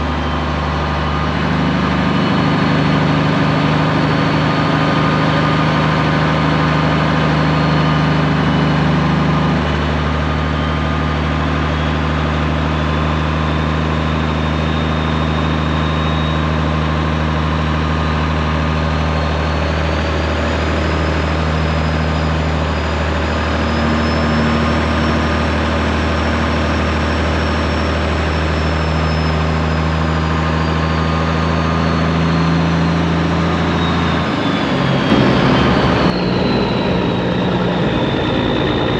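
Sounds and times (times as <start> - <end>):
diesel truck engine droning: 0.0 - 38.9
thin high whine: 0.0 - 38.9.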